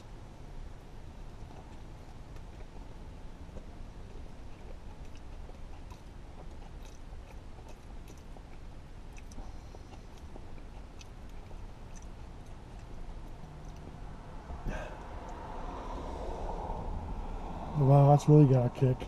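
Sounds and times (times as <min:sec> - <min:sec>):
steady low hum: 0:00.0 - 0:19.0
person chewing: 0:01.4 - 0:14.0.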